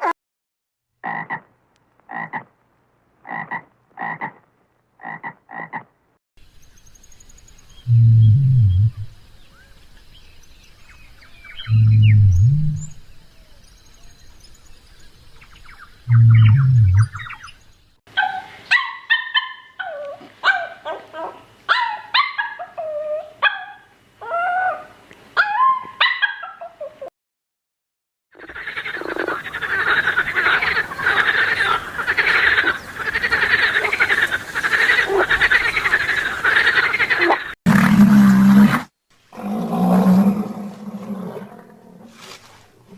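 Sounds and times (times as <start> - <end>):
frogs croaking: 1.0 - 1.5, 2.1 - 2.5, 3.2 - 4.4, 5.0 - 5.9, 15.3 - 17.8, 28.4 - 37.6
small birds chirping: 6.5 - 18.0
low animal calls: 7.9 - 9.1, 11.6 - 13.1, 16.1 - 17.4.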